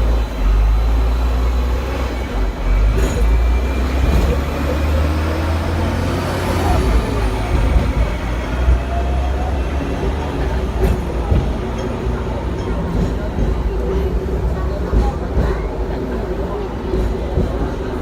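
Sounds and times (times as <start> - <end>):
tram rumbling on rails: 0.0 - 18.0.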